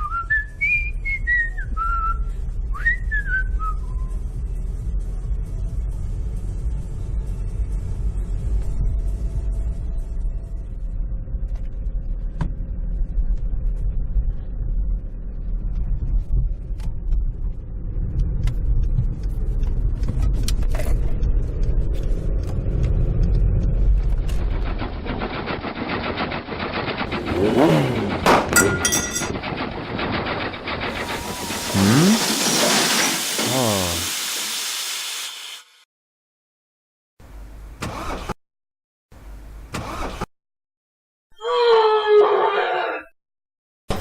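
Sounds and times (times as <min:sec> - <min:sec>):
low engine-like rumble: 0:01.5 - 0:27.4
squealing glide: 0:30.8 - 0:33.6
hissing sound: 0:30.9 - 0:35.8.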